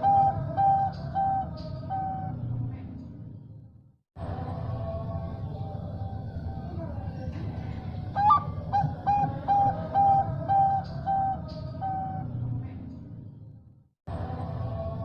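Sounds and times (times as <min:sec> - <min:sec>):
dove cooing: 0:00.0 - 0:02.3, 0:08.2 - 0:12.2.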